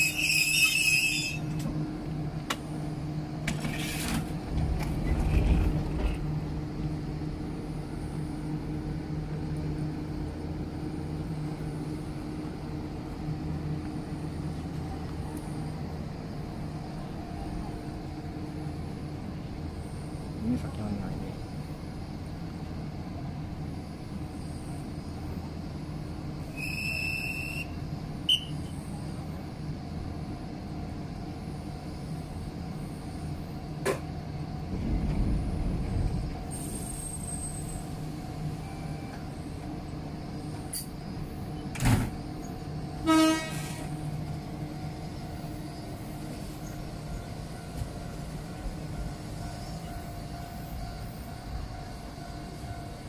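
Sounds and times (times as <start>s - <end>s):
train equipment humming: 0.0s - 53.0s
train horn blast: 43.0s - 43.9s.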